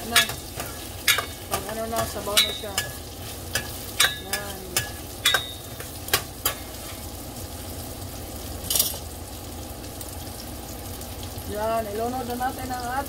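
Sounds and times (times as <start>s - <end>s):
metal spoon clinking against pot: 0.0s - 6.8s
onions sizzling in oil: 0.0s - 13.0s.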